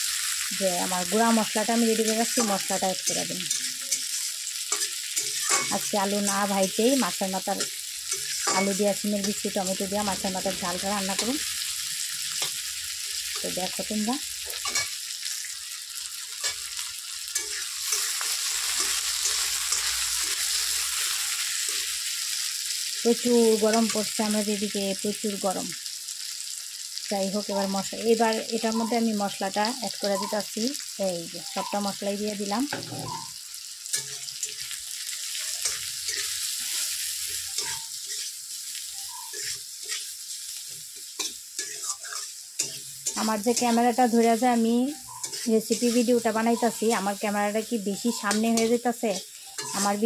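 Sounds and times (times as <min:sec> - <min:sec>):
vegetables sizzling in oil: 0:00.0 - 0:50.0
spatula scraping pan: 0:01.2 - 0:13.8, 0:14.4 - 0:22.0, 0:32.7 - 0:50.0.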